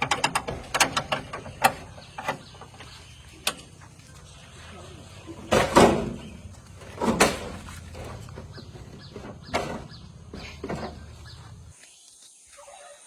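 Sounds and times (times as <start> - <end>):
diesel engine running: 0.0 - 11.7
digging arm knocks and creaks: 5.4 - 11.8.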